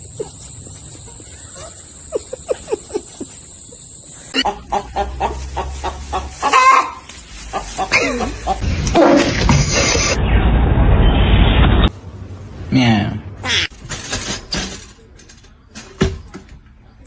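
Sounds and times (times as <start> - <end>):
chicken clucking: 0.0 - 8.6
loud chicken call: 4.4 - 7.0.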